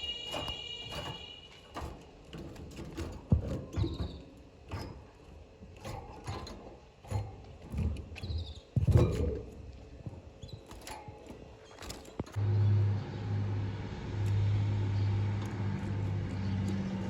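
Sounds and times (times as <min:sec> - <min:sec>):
canaries chirping: 0:00.0 - 0:04.9, 0:08.2 - 0:09.0, 0:14.3 - 0:17.0.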